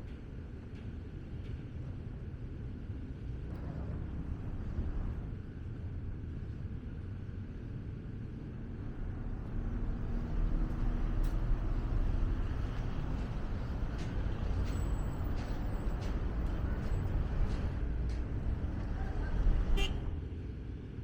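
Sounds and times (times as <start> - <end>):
heavy vehicles rumbling past: 8.6 - 21.0.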